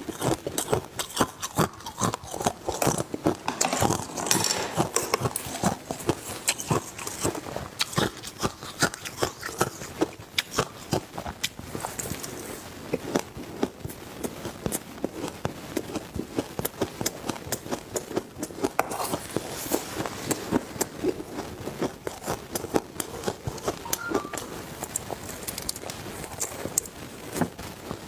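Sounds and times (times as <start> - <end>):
person chewing ice: 0.0 - 26.9.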